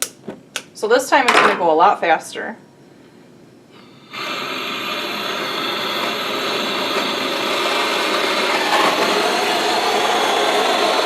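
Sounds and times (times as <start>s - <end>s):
torch flame hissing: 3.8s - 11.0s.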